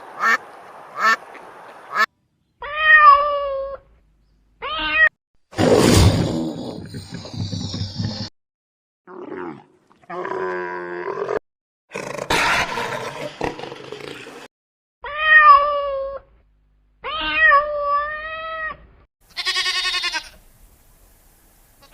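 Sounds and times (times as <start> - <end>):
cat meowing: 17.0 - 18.8.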